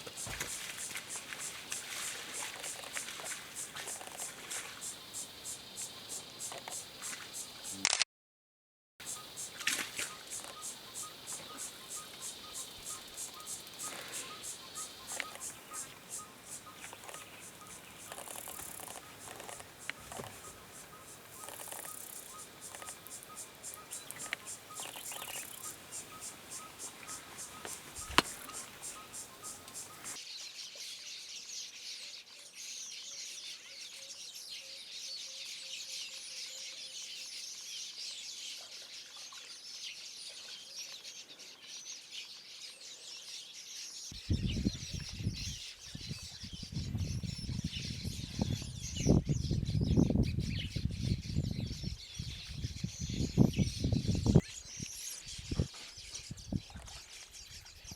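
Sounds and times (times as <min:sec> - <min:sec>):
rapid repeated chirping: 0:00.0 - 0:07.8, 0:09.0 - 0:30.2
birds and insects chorus: 0:00.0 - 0:07.9, 0:09.0 - 0:30.2, 0:39.6 - 0:57.9.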